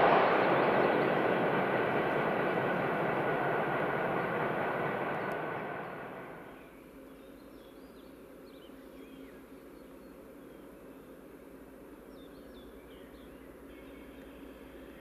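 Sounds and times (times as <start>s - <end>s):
low hum: 0.0s - 6.7s
train rumbling on rails: 0.0s - 6.7s
faint bird chirps: 12.0s - 15.0s.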